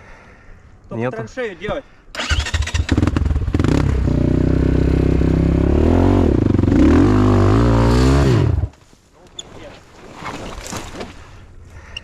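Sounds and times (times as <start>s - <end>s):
dirt bike engine revving: 2.2s - 8.7s.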